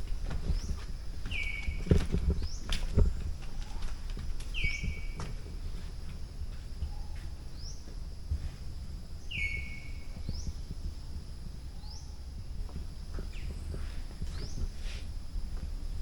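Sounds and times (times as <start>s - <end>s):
insect drone: 0.0s - 16.0s
bird whistling: 1.3s - 1.9s, 4.5s - 5.2s, 9.3s - 10.1s.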